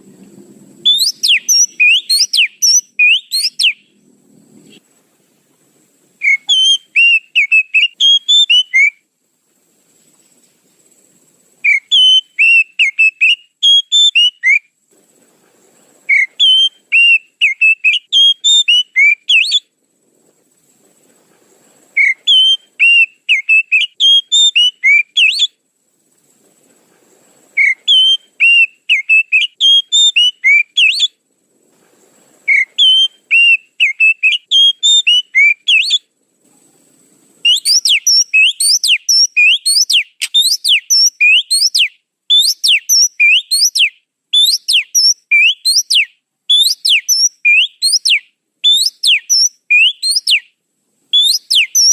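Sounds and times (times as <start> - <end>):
bird song whistled notes: 0.8 - 4.0, 6.2 - 9.0, 11.6 - 14.8, 16.1 - 19.7, 22.0 - 25.6, 27.6 - 31.2, 32.4 - 36.1, 37.4 - 51.9.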